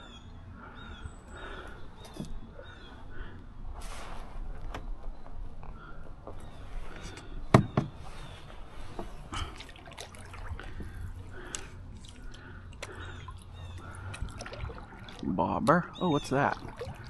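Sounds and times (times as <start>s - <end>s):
canoe paddle strokes in water: 6.5s - 17.0s
water dripping off paddle: 9.3s - 17.0s.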